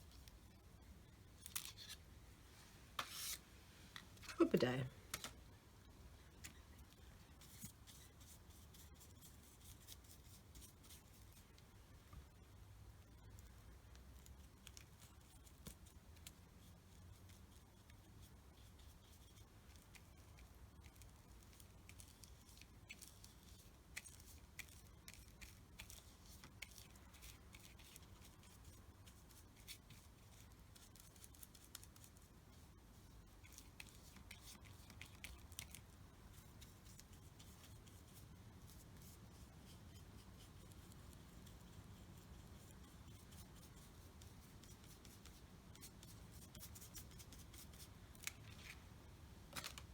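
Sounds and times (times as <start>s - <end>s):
art tool scratching on paper: 3.0s - 3.4s.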